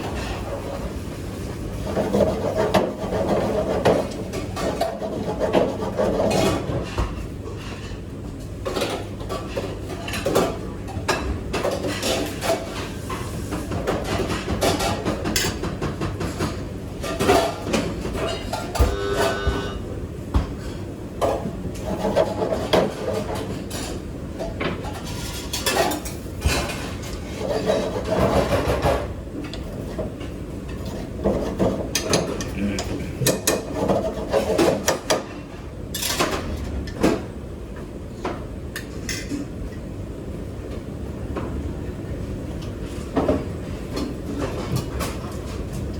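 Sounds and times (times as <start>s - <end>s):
rubbing and scraping: 1.8s - 6.8s
dishes and pots clattering: 8.6s - 19.8s, 20.4s - 29.2s, 29.9s - 37.2s.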